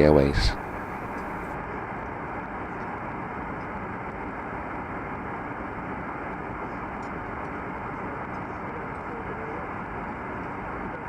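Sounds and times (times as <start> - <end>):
airliner cabin rushing hum: 0.0 - 1.6.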